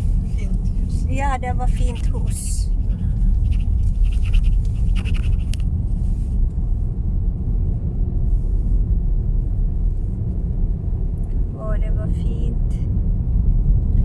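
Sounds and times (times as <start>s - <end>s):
faint scratchy rustles: 0.0s - 6.8s
car road noise rumble: 0.0s - 14.0s.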